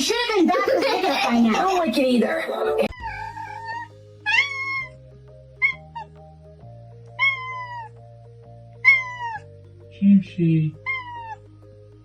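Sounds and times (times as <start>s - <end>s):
background music with held notes: 0.0s - 12.0s
cat meowing: 2.9s - 5.0s, 5.6s - 6.2s, 7.1s - 8.0s, 8.8s - 9.6s, 10.8s - 11.4s.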